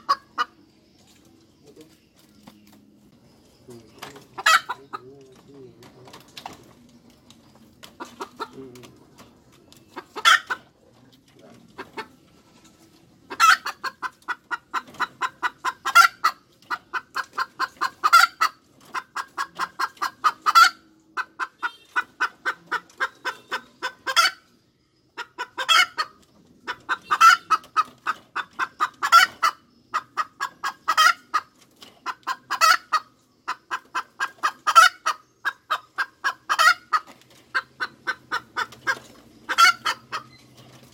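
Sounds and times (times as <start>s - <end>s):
hen cackling: 0.0s - 0.6s, 4.2s - 5.2s, 10.0s - 10.8s, 13.3s - 24.5s, 25.1s - 40.4s.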